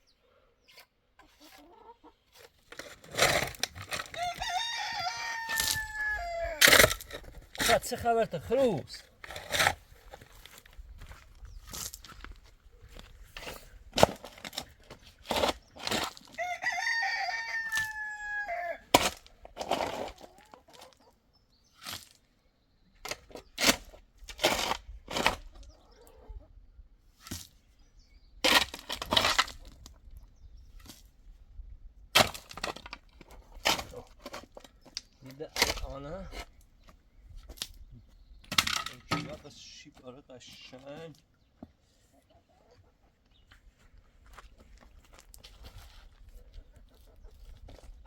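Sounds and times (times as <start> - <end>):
sharp knocks and scrapes: 0.7 - 4.5, 6.6 - 8.2, 9.2 - 12.3, 12.9 - 16.4
rooster crowing: 4.1 - 6.6, 16.4 - 18.9.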